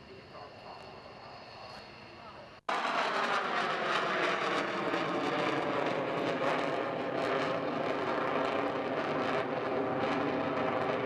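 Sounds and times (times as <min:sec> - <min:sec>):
aircraft engine: 0:00.0 - 0:11.0.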